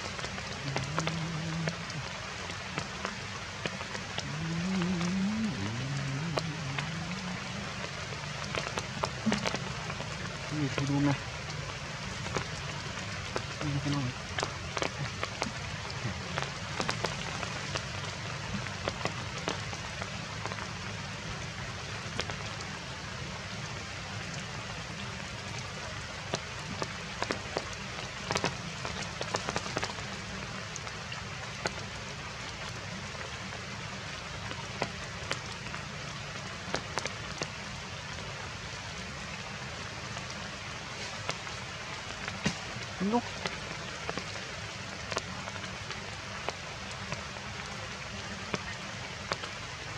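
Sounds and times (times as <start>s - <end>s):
heavy rain falling: 0.0s - 49.9s.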